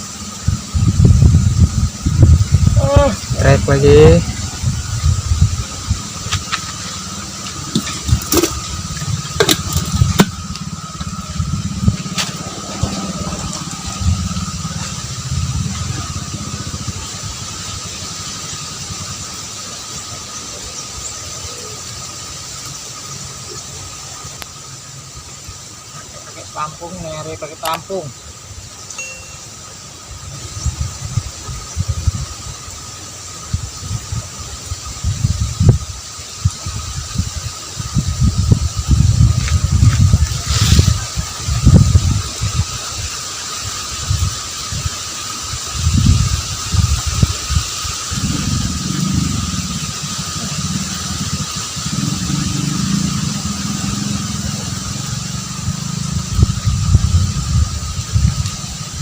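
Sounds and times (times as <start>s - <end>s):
wind buffeting microphone: 0.0s - 19.7s, 30.2s - 59.0s
small engine running: 0.0s - 20.6s, 38.0s - 59.0s
faint steady high tone: 28.8s - 29.7s.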